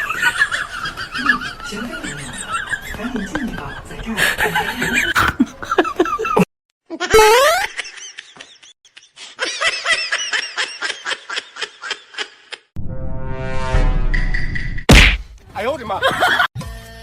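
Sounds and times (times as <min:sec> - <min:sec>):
high-pitched laughter: 0:04.5 - 0:12.6.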